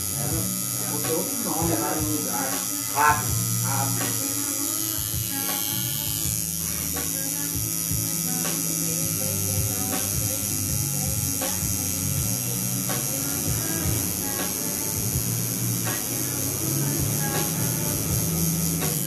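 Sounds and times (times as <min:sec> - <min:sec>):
electric coil buzzing: 0:00.0 - 0:19.0.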